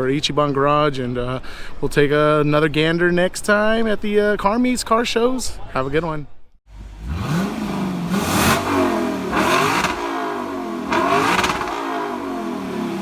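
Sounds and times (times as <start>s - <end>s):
car engine revving: 6.7s - 13.0s
exhaust rasp: 6.7s - 13.0s.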